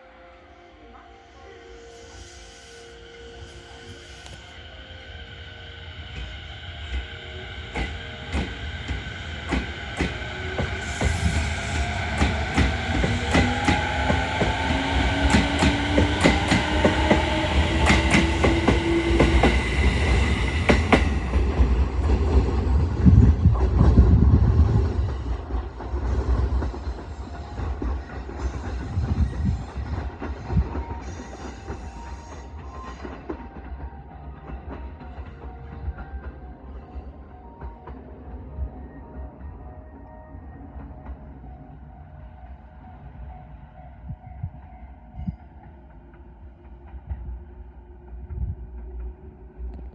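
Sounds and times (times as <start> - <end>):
electric train motors whining: 2.0 - 22.5.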